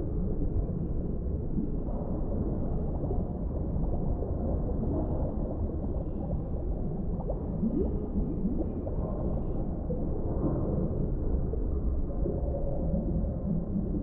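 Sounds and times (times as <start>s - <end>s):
rising bubble glides: 0.0s - 14.0s
underwater low rumble: 0.0s - 14.0s.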